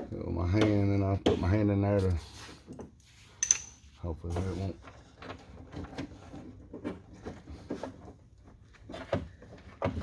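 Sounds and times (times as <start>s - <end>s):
tool clicking and scraping on nut: 3.4s - 3.8s.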